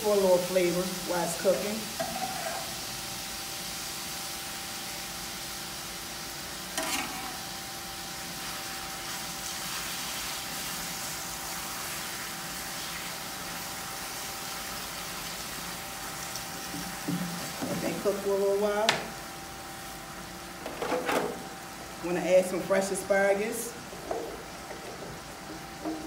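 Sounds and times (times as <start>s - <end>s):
beef sizzling in a skillet: 0.0s - 20.6s, 21.4s - 26.0s
spatula stirring: 2.0s - 2.8s.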